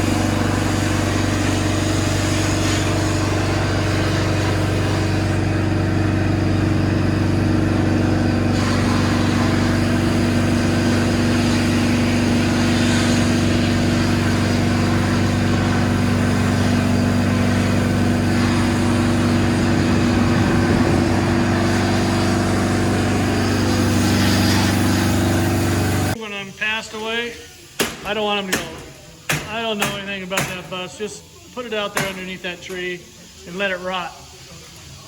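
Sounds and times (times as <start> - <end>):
machine humming: 0.0 - 26.2
high hiss: 8.5 - 35.0.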